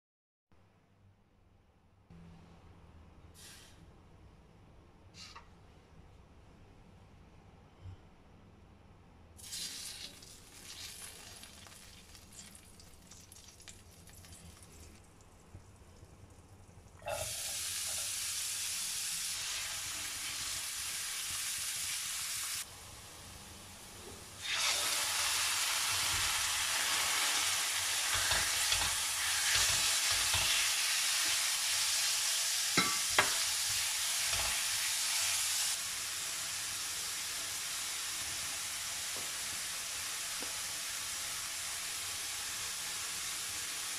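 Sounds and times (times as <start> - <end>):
onion and chicken sizzling in pan: 17.0 - 43.9
utensil tapping on pan: 32.8 - 33.4.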